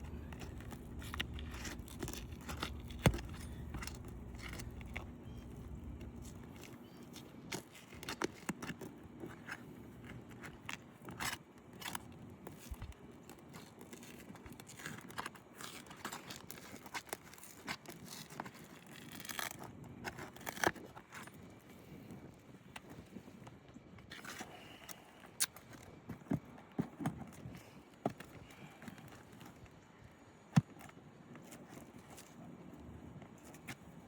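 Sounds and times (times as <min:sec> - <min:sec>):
shingles scraping and crackling: 0:00.1 - 0:06.7.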